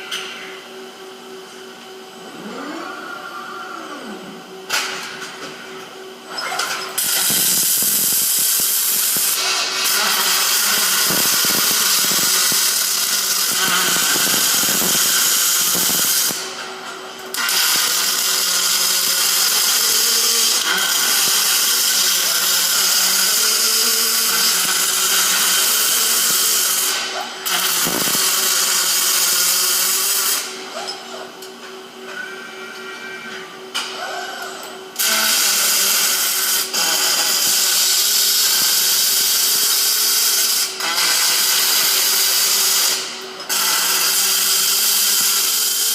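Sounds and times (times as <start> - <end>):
steady hum: 0.0 - 20.7
welding arc crackling and hissing: 6.6 - 16.7, 17.3 - 30.6, 35.0 - 45.9.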